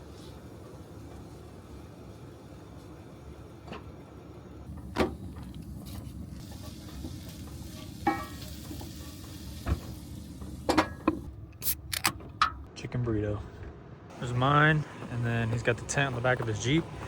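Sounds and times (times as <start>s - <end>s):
food sizzling in a pan: 5.8s - 11.1s.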